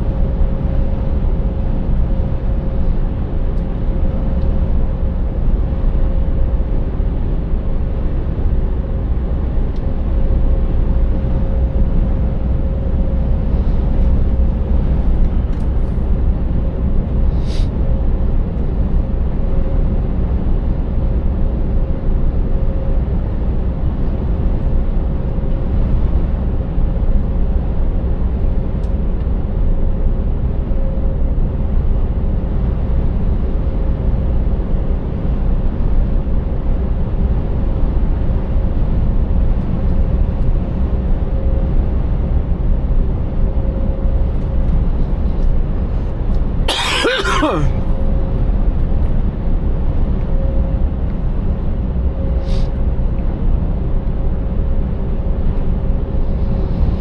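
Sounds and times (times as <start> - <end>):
steady hum: 45.1 - 48.0.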